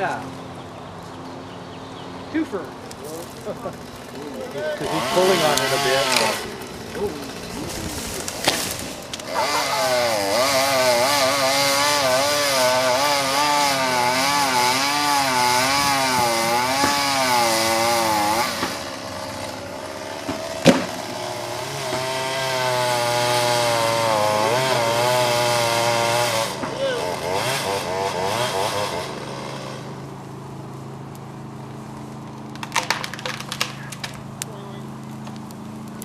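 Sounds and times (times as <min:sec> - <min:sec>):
chainsaw cutting into tree: 0:02.9 - 0:30.3.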